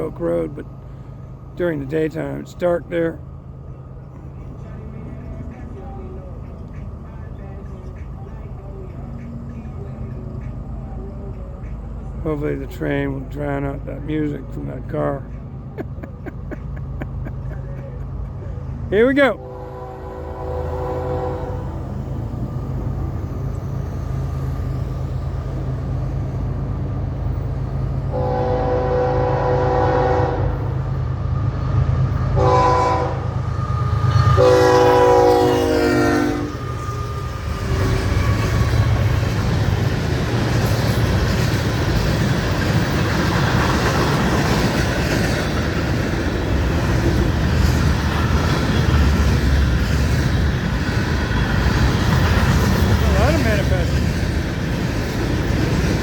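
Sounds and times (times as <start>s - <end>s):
locomotive engine rumble: 0.0s - 56.0s
locomotive air horn: 19.4s - 21.8s, 28.1s - 30.7s, 32.4s - 33.4s, 34.2s - 37.1s
train wheels on rails: 20.3s - 56.0s.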